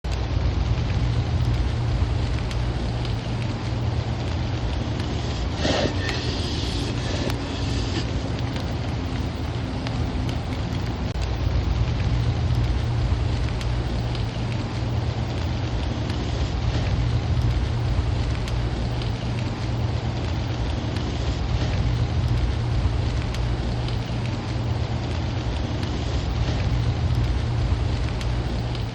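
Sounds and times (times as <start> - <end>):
steady rain falling: 0.0 - 28.9.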